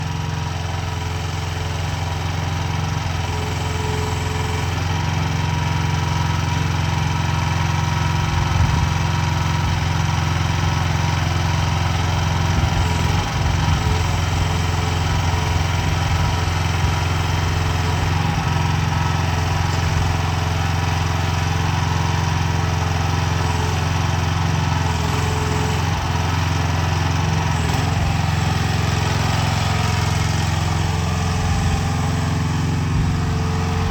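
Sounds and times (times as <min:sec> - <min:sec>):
small gas engine running: 0:00.0 - 0:33.9.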